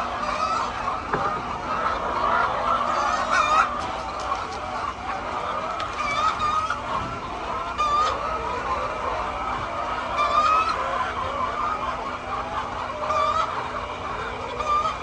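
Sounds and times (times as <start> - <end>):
hens clucking: 1.7 - 8.9.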